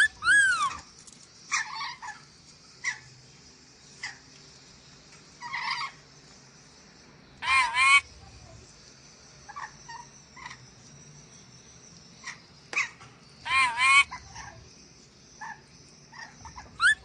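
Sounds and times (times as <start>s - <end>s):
parrot calling and squawking: 0.0s - 0.8s, 1.5s - 2.2s, 5.4s - 6.0s, 7.4s - 8.1s, 12.2s - 14.6s, 15.4s - 17.0s.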